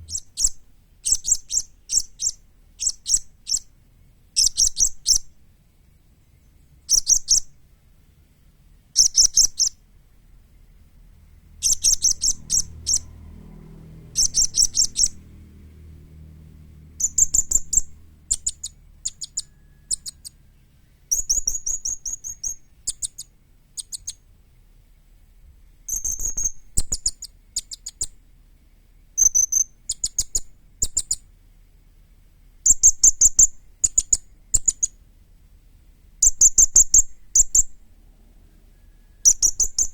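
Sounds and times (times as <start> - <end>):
parrot chirping: 0.0 - 3.7, 4.4 - 5.3, 6.9 - 7.5, 9.0 - 9.8, 11.6 - 13.1, 14.1 - 15.4, 17.0 - 20.4, 21.1 - 24.2, 25.9 - 28.2, 29.2 - 31.2, 32.6 - 35.0, 36.2 - 37.7, 39.2 - 39.9.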